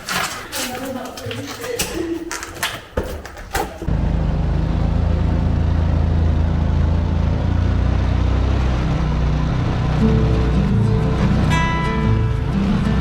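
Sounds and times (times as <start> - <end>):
motorbike engine humming: 3.9 - 13.0.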